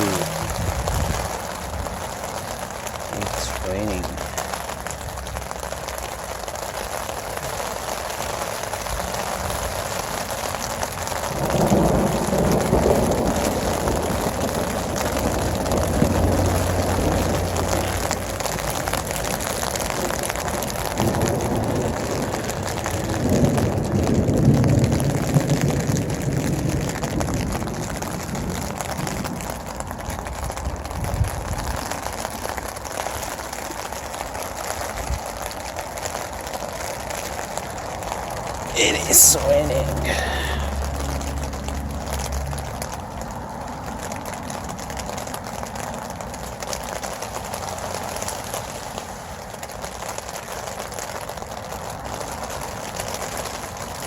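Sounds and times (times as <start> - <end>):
heavy rain on a tent: 0.0 - 54.0
low rolls of thunder: 11.3 - 18.0, 21.0 - 29.3.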